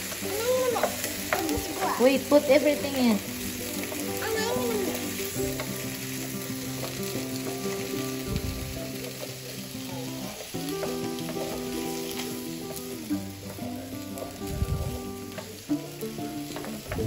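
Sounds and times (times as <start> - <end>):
wooden spoon stirring: 0.0 - 3.0, 10.4 - 12.8
vegetables sizzling in a frying pan: 0.0 - 17.0.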